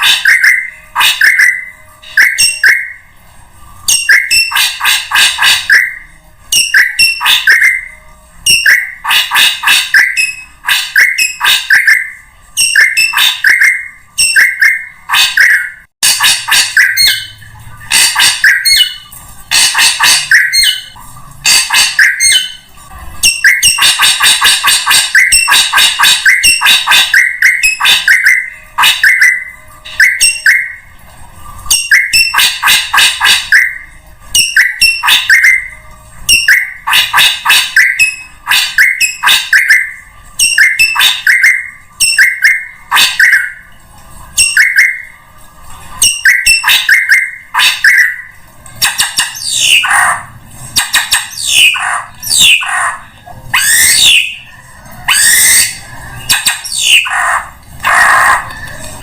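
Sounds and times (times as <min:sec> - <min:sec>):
harsh chattering bird calls: 0:00.0 - 0:03.0, 0:03.9 - 0:30.9, 0:31.7 - 0:43.7, 0:46.0 - 0:59.0.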